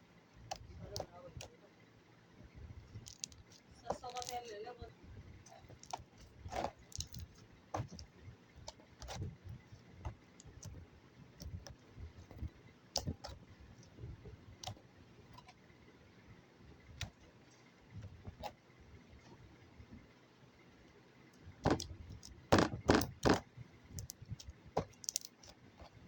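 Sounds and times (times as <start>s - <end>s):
slime clicking and popping: 3.0s - 4.4s, 5.7s - 8.1s, 13.0s - 13.4s, 21.6s - 23.4s, 24.8s - 25.5s.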